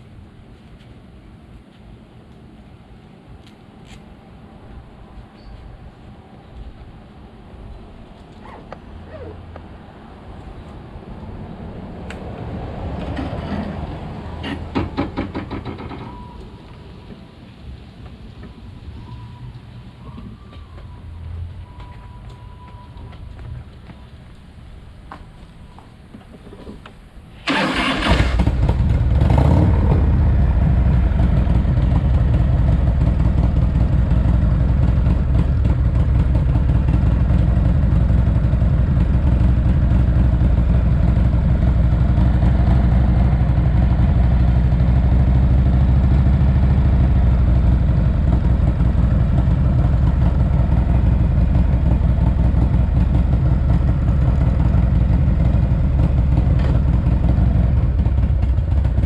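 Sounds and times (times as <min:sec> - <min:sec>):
motorcycle engine starting and idling: 0:26.7 - 0:59.0.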